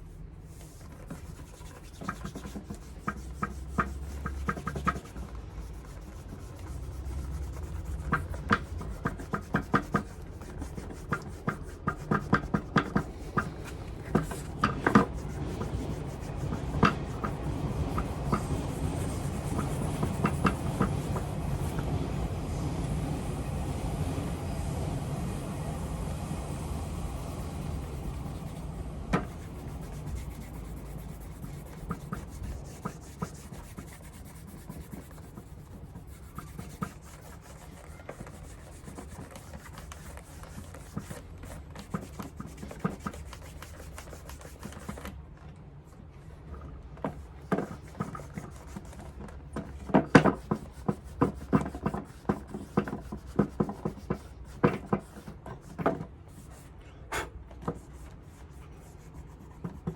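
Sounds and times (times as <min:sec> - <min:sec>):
cloth rubbing leather shoe: 0:00.0 - 0:22.0, 0:27.2 - 0:45.1.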